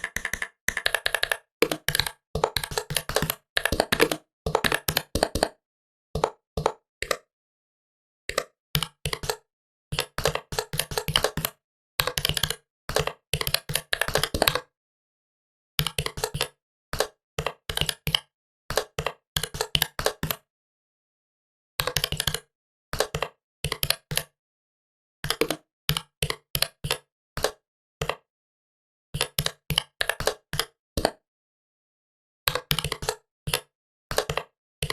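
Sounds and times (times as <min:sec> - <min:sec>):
laptop keyboard typing: 0:00.0 - 0:05.5, 0:08.3 - 0:14.6, 0:15.8 - 0:20.4, 0:32.5 - 0:34.9.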